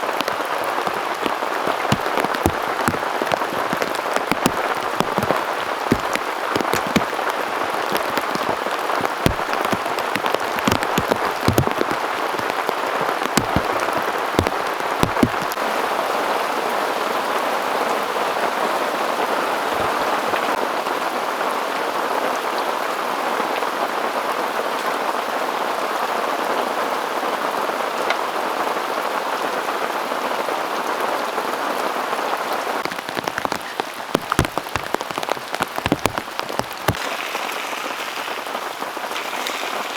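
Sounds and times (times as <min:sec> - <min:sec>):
large raindrops striking close: 0:00.0 - 0:15.8, 0:32.8 - 0:39.9
heavy rain falling: 0:00.0 - 0:22.4, 0:31.6 - 0:39.9.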